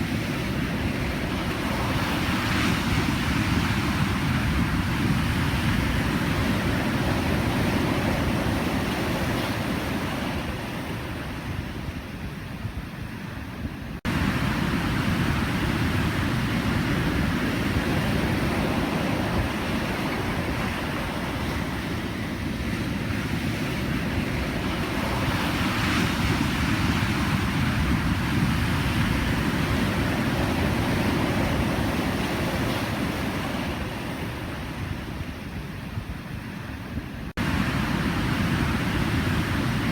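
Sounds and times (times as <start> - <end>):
ocean waves breaking: 14.0 - 39.9.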